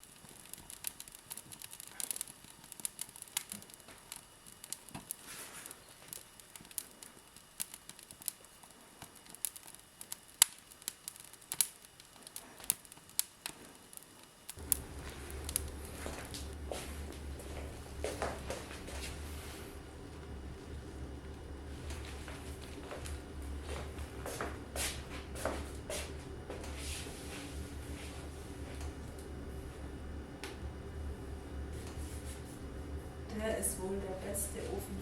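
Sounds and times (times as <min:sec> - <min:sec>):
wood fire crackling: 0:00.0 - 0:35.0
low hum: 0:14.6 - 0:35.0.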